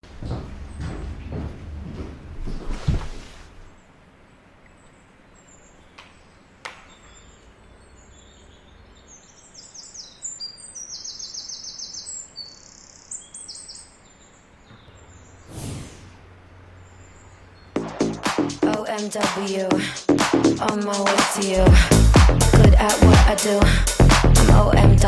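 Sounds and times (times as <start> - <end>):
faint outdoor background noise: 0.0 - 17.9
birds chirping: 4.7 - 17.8.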